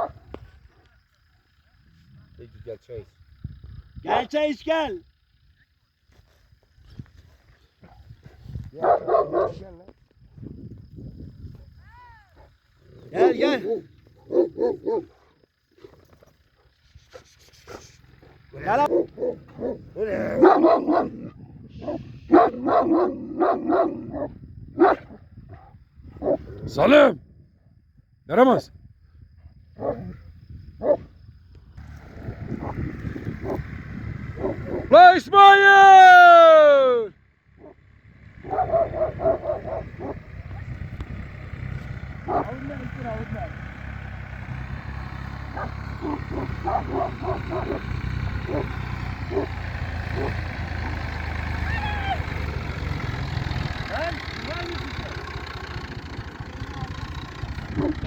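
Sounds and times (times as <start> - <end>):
dog barking: 0.0 - 0.3, 8.7 - 9.7, 12.3 - 16.0, 18.2 - 26.5, 29.8 - 30.2, 30.8 - 31.1, 34.4 - 34.9, 37.6 - 37.8, 38.4 - 40.7, 42.2 - 42.8, 45.5 - 50.4, 57.7 - 58.0
vehicle engine humming: 0.0 - 27.0, 29.2 - 58.0.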